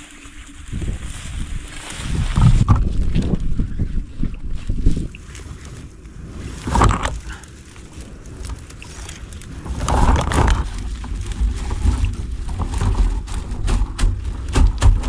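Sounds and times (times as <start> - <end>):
wind buffeting microphone: 0.0 - 15.0
sharp clicks and knocks: 9.7 - 15.0.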